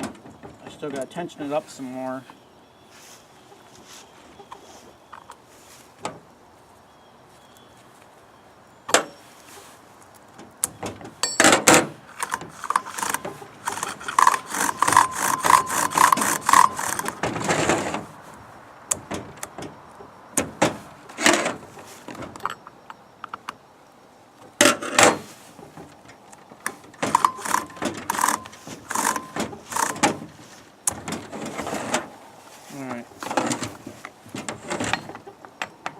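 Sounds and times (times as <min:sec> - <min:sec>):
small ringing clinks: 0:11.2 - 0:11.6
saw chain clinking and rattling: 0:11.2 - 0:17.2, 0:27.0 - 0:30.2.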